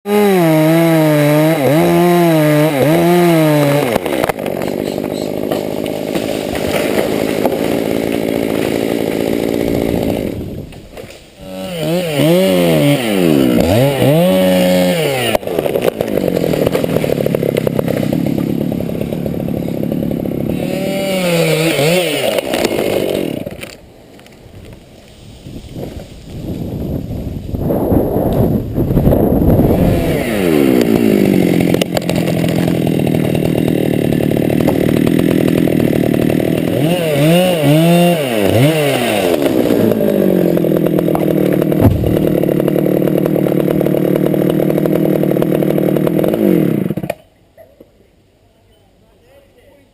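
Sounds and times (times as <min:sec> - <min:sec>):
chainsaw cutting and revving: 0:00.1 - 0:23.8, 0:29.5 - 0:47.2.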